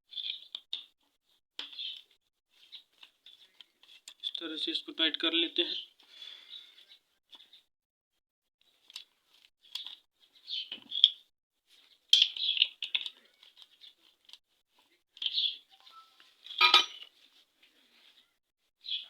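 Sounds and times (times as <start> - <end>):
small birds chirping: 0.1 - 7.7, 8.7 - 16.6, 17.7 - 19.0.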